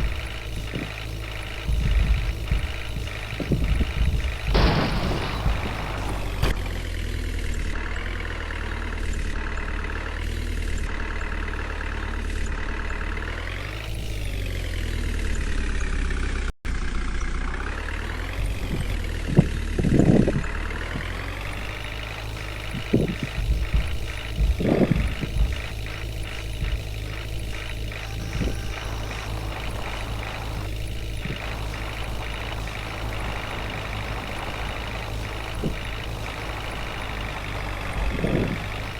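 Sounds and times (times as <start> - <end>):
truck engine running: 0.0 - 38.9.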